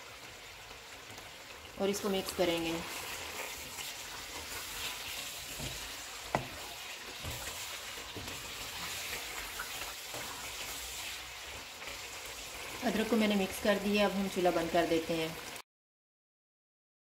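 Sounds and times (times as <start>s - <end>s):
chicken sizzling in oil: 0.0s - 15.6s
wooden spatula stirring: 1.0s - 12.8s.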